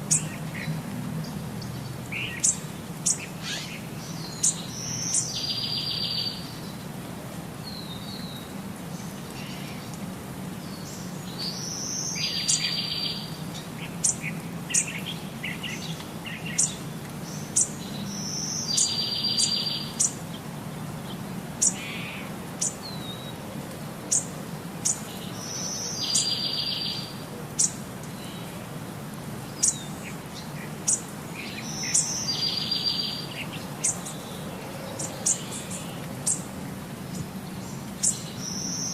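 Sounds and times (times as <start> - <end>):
songbird song with buzzy trill: 1.2 - 6.7, 10.7 - 20.2, 24.1 - 28.5, 29.6 - 36.5, 37.1 - 38.9.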